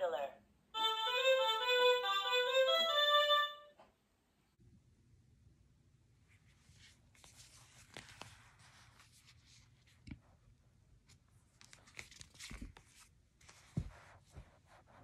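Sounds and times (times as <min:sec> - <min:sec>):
book rustling and sliding: 0:06.3 - 0:10.3, 0:11.1 - 0:15.0
book thumping down: 0:13.6 - 0:14.5.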